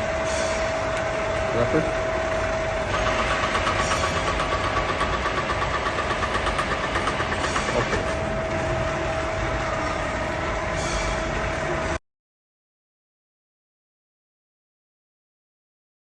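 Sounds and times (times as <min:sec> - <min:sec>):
milling machine gear whine: 0:00.0 - 0:12.0.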